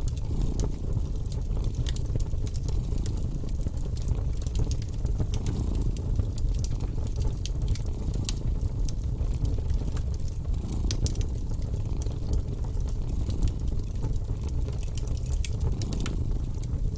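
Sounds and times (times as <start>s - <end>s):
cat purring: 0.0s - 16.9s
fireplace crackling and popping: 0.0s - 16.9s.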